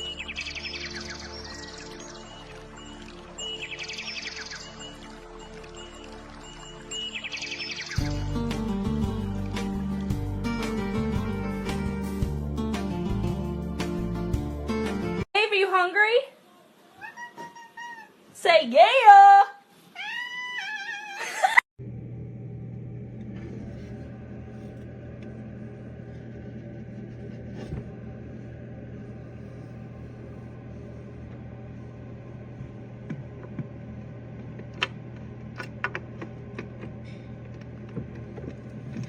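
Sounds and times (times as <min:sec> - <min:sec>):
low hum: 0:21.8 - 0:39.0.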